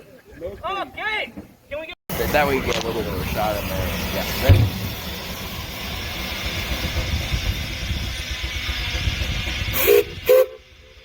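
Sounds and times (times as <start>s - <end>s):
low engine rumble: 2.1s - 11.0s
steam hissing: 2.1s - 11.0s
short loud whistle blasts: 9.8s - 10.6s.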